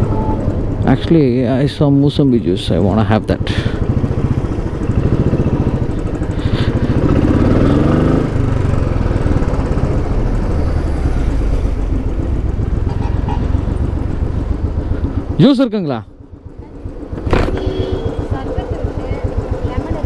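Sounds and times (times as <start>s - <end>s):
motorcycle engine thumping: 16.1s - 20.0s.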